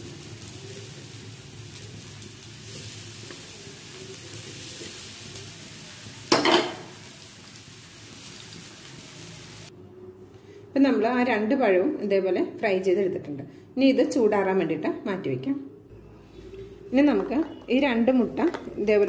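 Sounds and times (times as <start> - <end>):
banana sizzling in a pan: 0.0 - 9.7.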